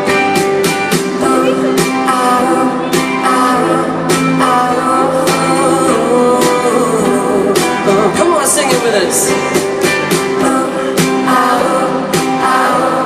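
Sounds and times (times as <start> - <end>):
guitar strumming: 0.0 - 13.0
person singing: 0.7 - 13.0.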